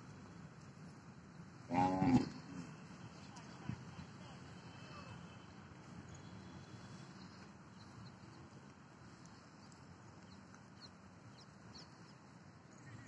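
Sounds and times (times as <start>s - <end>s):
faint outdoor background noise: 0.0s - 13.0s
distant birds chirping: 1.2s - 13.0s.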